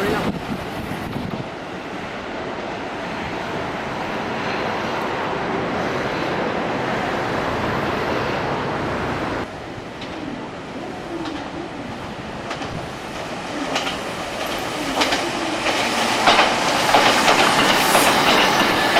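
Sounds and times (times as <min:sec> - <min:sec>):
electric train passing at speed: 0:00.0 - 0:18.9.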